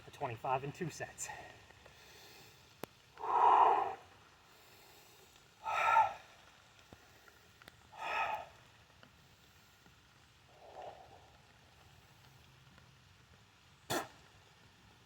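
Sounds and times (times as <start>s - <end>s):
man exhaling heavily: 5.6s - 6.2s, 8.0s - 8.5s.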